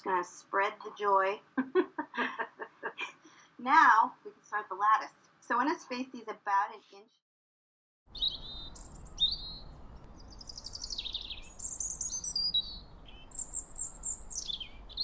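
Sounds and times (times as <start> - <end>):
birds chirping and whistling: 8.1 - 15.0
faint low rumble: 8.8 - 11.7.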